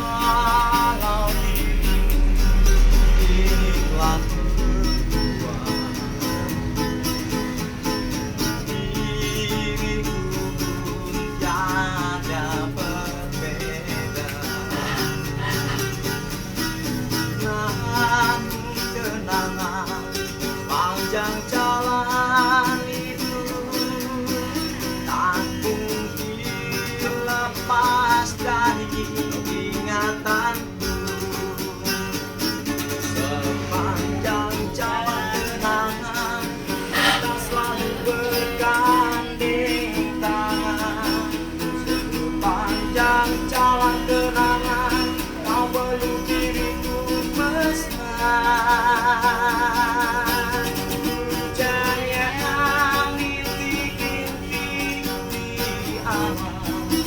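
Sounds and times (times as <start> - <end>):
bass line: 0.0 - 18.3
guitar playing: 0.0 - 57.0.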